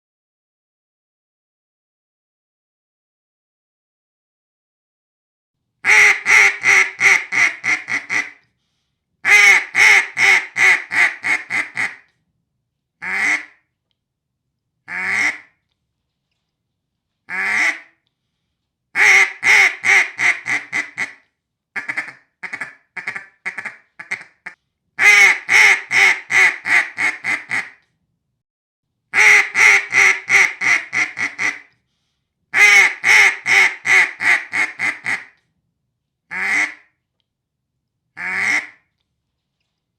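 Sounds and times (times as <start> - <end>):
duck call quacks: 5.9 - 8.4, 9.2 - 12.0, 13.0 - 13.6, 14.9 - 15.5, 17.3 - 17.9, 19.0 - 21.2, 21.8 - 27.8, 29.2 - 31.7, 32.6 - 35.4, 36.3 - 36.9, 38.2 - 38.8.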